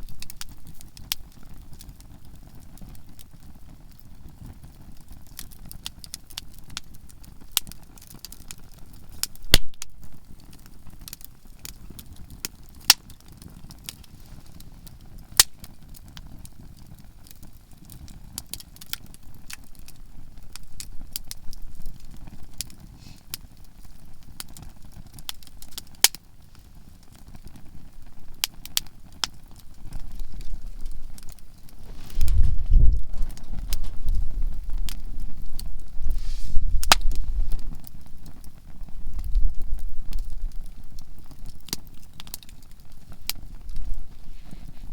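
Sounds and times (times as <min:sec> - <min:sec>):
campfire crackling and popping: 0:00.0 - 0:44.9
low rumble: 0:31.9 - 0:34.6.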